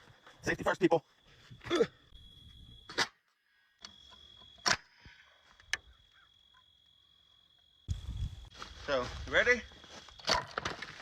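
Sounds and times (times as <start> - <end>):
faint high whine: 0.0 - 10.2.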